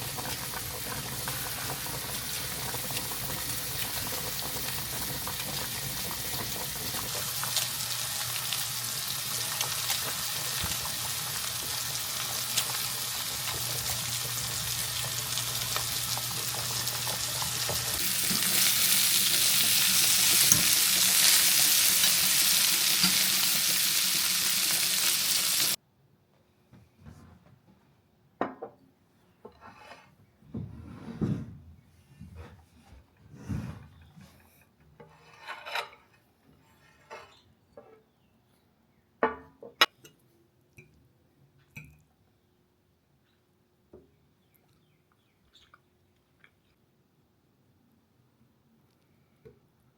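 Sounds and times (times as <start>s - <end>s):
food sizzling in a hot pan: 0.0s - 25.8s.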